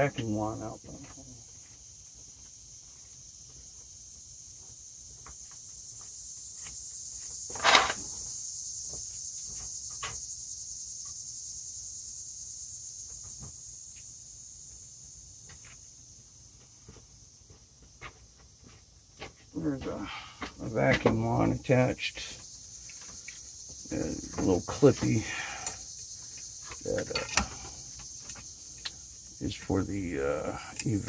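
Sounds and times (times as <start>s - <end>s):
high-pitched insect chorus: 0.0s - 31.0s
loud clunk: 7.5s - 8.1s.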